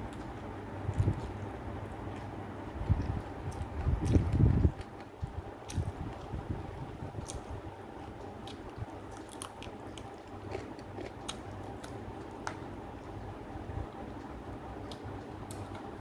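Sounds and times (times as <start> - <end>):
person chewing meat: 0.0 - 6.4, 8.2 - 13.2.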